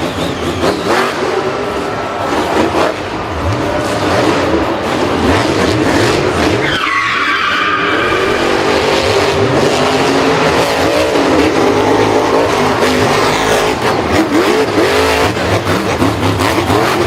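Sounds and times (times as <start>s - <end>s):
tire skid squeal: 0.0s - 3.0s, 5.5s - 9.7s
racing engines revving: 0.0s - 17.0s.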